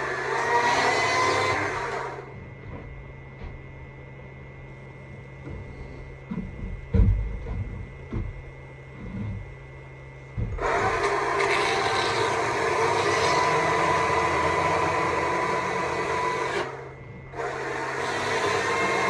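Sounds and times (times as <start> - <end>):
chainsaw cutting wood: 10.6 - 16.8, 17.4 - 19.0.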